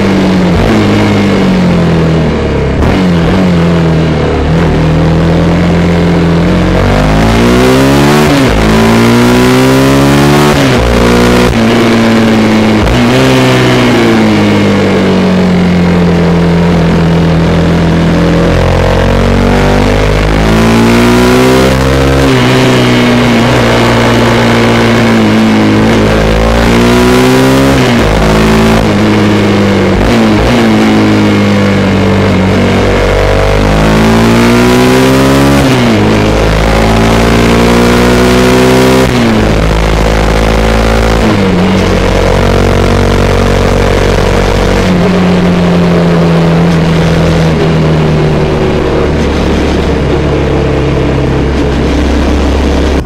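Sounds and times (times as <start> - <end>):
motorcycle engine accelerating: 0.0 - 53.0
wind rush: 44.1 - 53.0.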